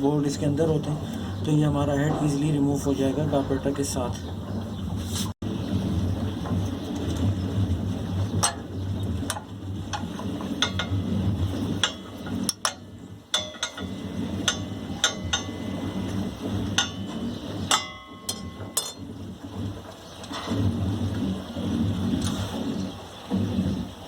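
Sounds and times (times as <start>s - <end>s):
steady low hum: 0.0s - 24.0s
metal tools clinking on engine: 11.8s - 16.2s, 16.8s - 19.1s.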